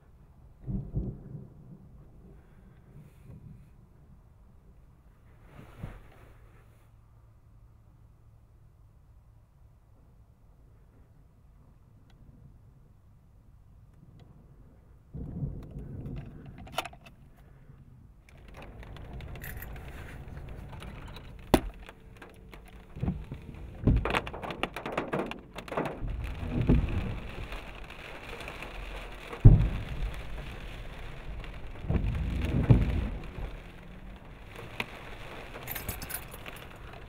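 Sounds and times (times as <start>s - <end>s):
steady rain: 0.0s - 6.0s, 14.4s - 37.0s
thunder rumbling: 0.4s - 4.8s, 14.4s - 37.0s
rockets bursting with loud booms: 18.4s - 37.0s.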